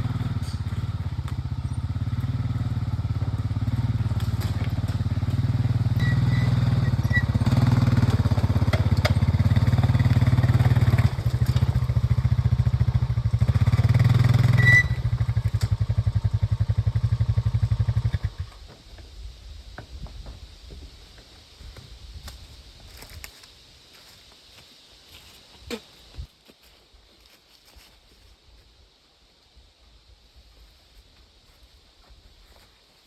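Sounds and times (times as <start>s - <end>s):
small engine running: 0.0s - 18.7s.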